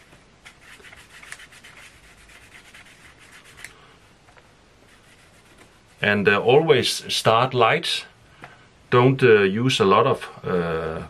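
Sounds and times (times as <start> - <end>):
brush rubbing on leather: 0.0 - 3.7, 4.8 - 6.1.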